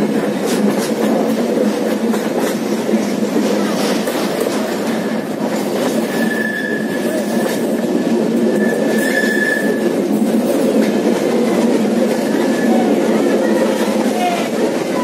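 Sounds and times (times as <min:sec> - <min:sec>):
train wheels rumbling: 0:00.0 - 0:15.0
high wheel squeal: 0:06.0 - 0:07.6, 0:08.5 - 0:09.9.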